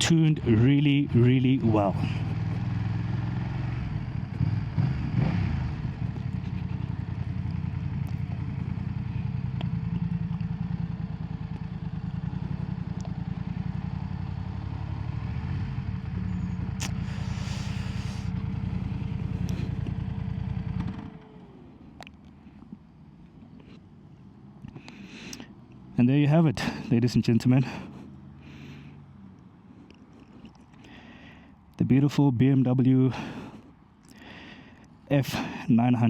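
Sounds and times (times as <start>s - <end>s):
motorcycle engine running at low revs: 0.0s - 23.8s.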